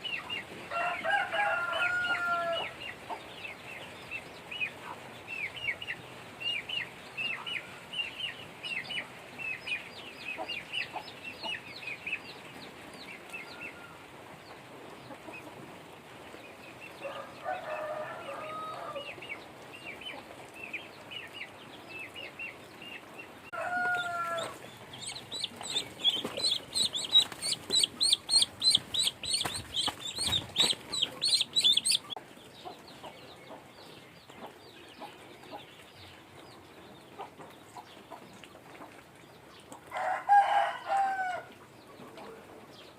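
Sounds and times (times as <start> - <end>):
ducklings peeping: 0.0 - 0.6, 2.1 - 14.0, 19.0 - 39.8
lower calls: 23.9 - 32.2.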